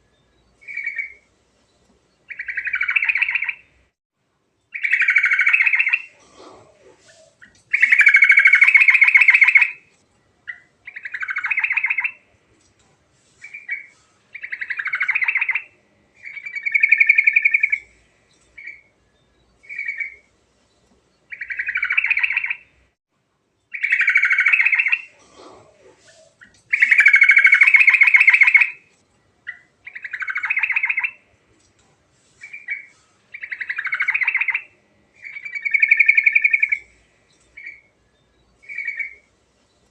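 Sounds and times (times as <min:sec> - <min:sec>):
bulbul singing: 0:02.3 - 0:03.8, 0:07.1 - 0:09.8, 0:26.1 - 0:28.8, 0:32.4 - 0:39.3.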